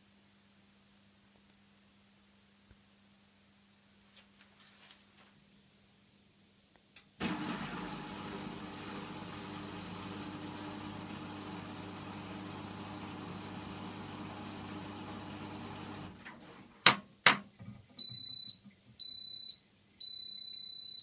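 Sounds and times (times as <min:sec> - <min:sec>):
washing machine motor humming: 0:07.2 - 0:16.7.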